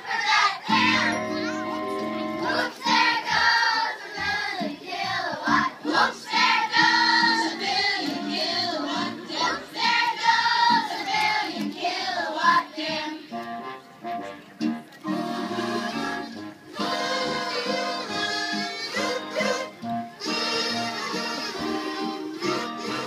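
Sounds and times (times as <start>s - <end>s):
high-pitched singing voices: 0.0s - 13.2s, 15.3s - 23.0s.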